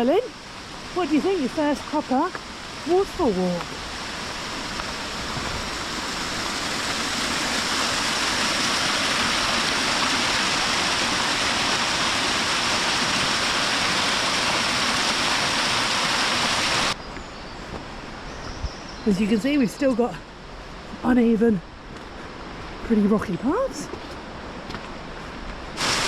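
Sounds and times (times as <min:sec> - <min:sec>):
rushing river water: 0:00.0 - 0:17.0, 0:25.0 - 0:26.0.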